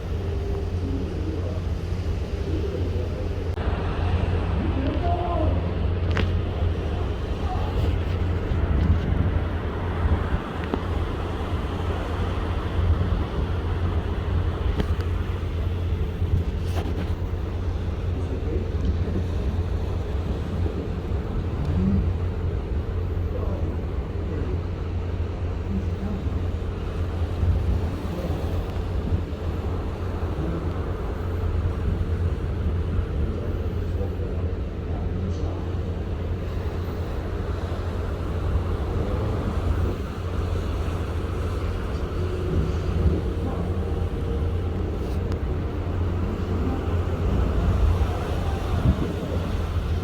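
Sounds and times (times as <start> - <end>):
boat engine drone: 0.0 - 50.0
steady low rumble: 0.0 - 50.0
water noise: 0.0 - 50.0
wind: 0.0 - 50.0.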